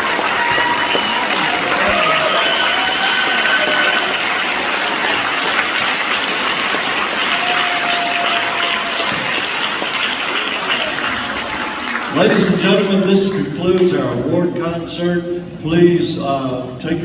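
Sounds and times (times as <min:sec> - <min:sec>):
short cheers: 0:00.0 - 0:05.9, 0:07.2 - 0:12.4
audience applauding: 0:00.0 - 0:14.2.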